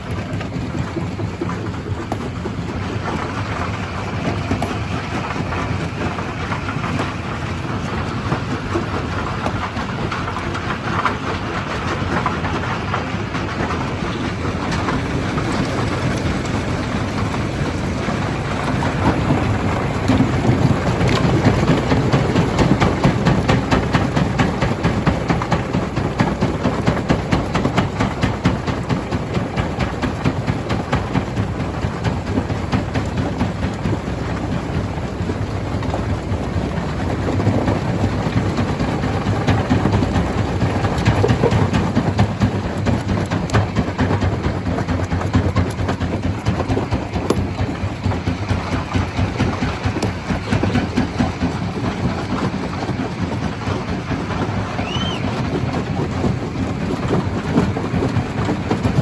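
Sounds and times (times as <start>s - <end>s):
stone crusher rumbling: 0.0s - 59.0s
clatter of rock being crushed: 36.9s - 59.0s.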